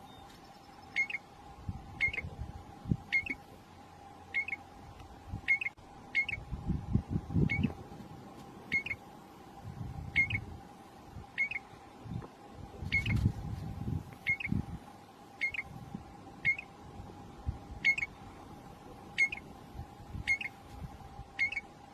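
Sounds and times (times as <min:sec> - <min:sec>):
small bird high call: 0:00.0 - 0:01.3, 0:05.5 - 0:06.4, 0:08.7 - 0:09.0, 0:11.4 - 0:11.7, 0:14.2 - 0:14.6, 0:15.4 - 0:15.7, 0:17.8 - 0:18.2, 0:19.2 - 0:19.5, 0:20.2 - 0:20.6, 0:21.4 - 0:21.7
low rumbles: 0:00.0 - 0:21.4
faint steady hum: 0:00.0 - 0:21.9.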